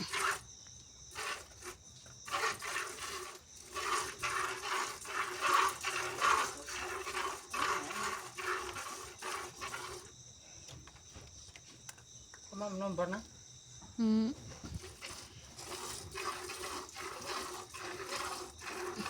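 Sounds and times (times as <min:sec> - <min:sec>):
milk squirting into container: 0:00.0 - 0:00.5, 0:01.1 - 0:10.1, 0:14.7 - 0:19.0.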